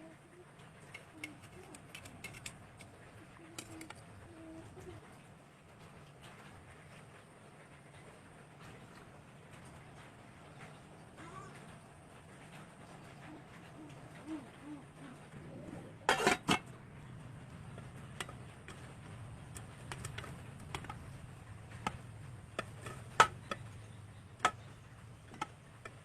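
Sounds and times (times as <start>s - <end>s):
kitchen utensils clinking: 16.0s - 16.7s.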